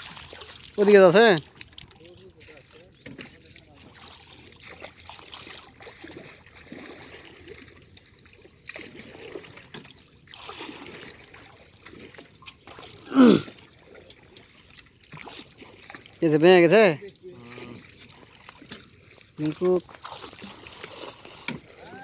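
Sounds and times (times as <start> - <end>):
shallow water splashing: 0.0 - 22.0
person crying out: 13.1 - 13.5, 21.8 - 22.0.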